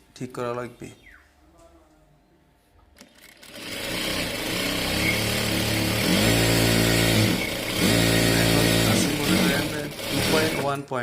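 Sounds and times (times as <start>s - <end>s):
electric sewing machine sewing: 3.0s - 10.9s.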